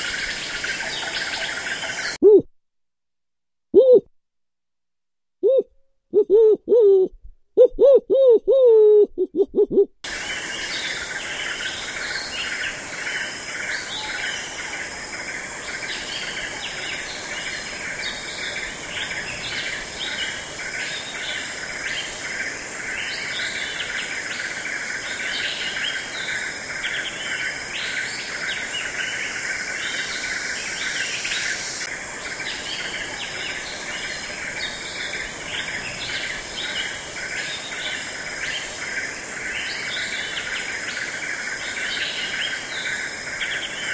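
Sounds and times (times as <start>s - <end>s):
insects chorus: 0.0s - 2.2s, 10.1s - 43.9s
owl hooting: 0.7s - 2.5s, 3.8s - 4.1s, 5.4s - 9.9s
birds chirping: 10.1s - 43.9s.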